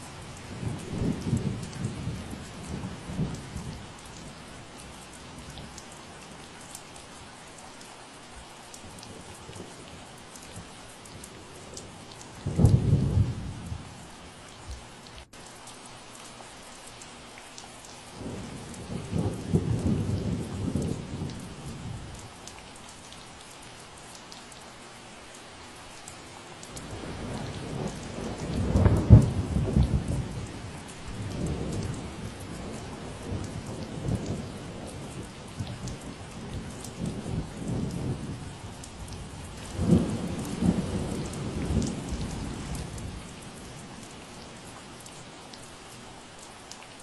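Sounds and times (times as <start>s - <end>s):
steady rain falling: 0.0s - 47.0s
low roll of thunder: 0.4s - 4.2s, 11.7s - 13.9s, 18.2s - 22.3s, 26.8s - 44.6s.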